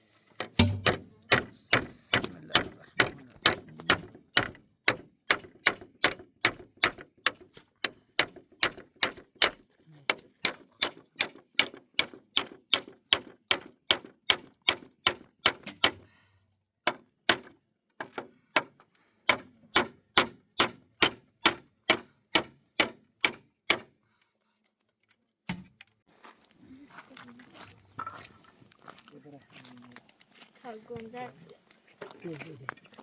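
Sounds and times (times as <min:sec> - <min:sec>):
hammer striking wood: 0:00.4 - 0:16.0, 0:16.8 - 0:23.9.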